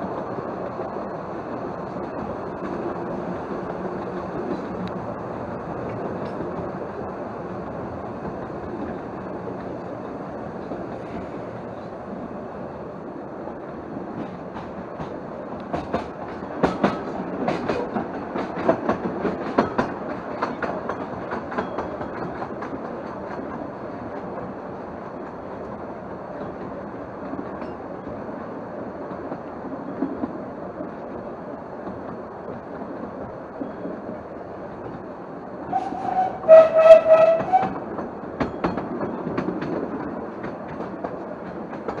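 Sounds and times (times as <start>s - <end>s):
railway carriage rumbling: 0.0s - 42.0s
wheels clicking over track joints: 14.2s - 24.5s.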